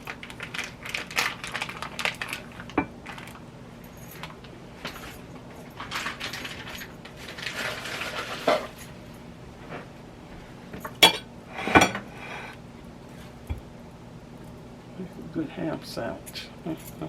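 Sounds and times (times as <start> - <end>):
dishes and utensils clinking: 10.8 - 12.1.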